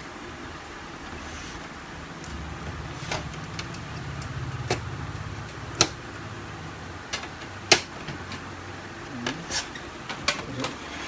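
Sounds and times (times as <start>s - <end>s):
low hum: 1.2s - 8.4s.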